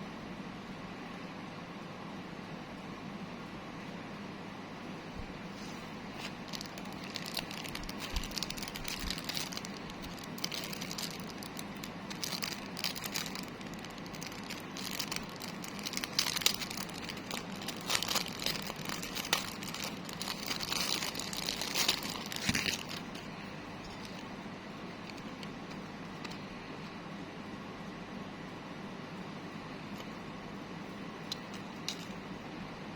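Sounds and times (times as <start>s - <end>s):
steady background hiss: 0.0s - 32.9s
packaging crinkling and rustling: 5.5s - 24.3s, 25.0s - 26.5s, 31.3s - 32.2s.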